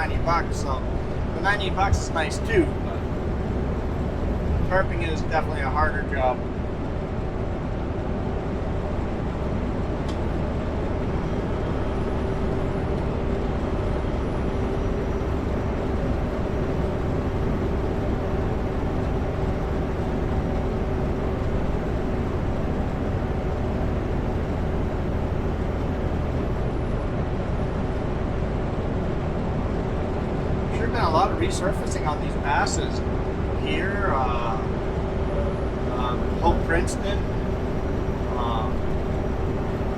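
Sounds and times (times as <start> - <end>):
truck engine hum: 0.0 - 39.9.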